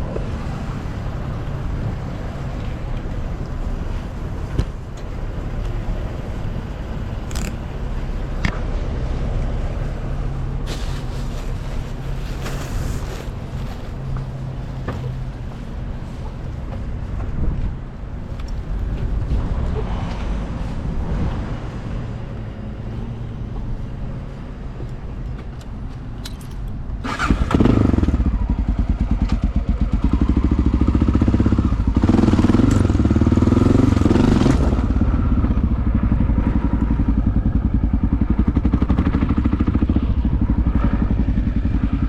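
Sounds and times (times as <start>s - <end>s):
motorcycle engine revving: 27.0s - 42.0s.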